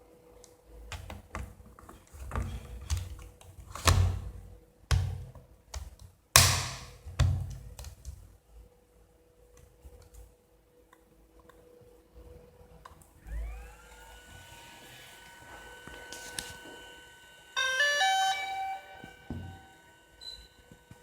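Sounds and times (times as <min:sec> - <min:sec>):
faint steady hum: 0:06.5 - 0:21.0.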